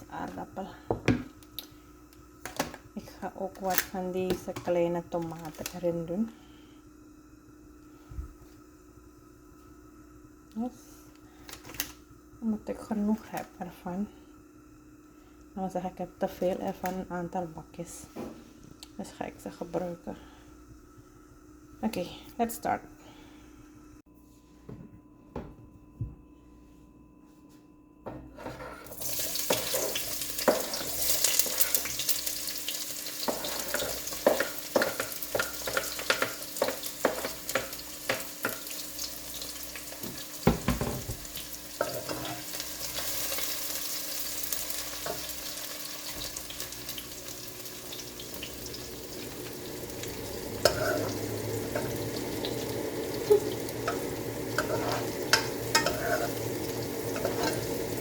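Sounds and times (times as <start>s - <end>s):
food sizzling in hot oil: 28.9s - 58.0s
metal utensil stirring in pan: 33.2s - 38.7s, 41.8s - 42.5s, 50.6s - 58.0s.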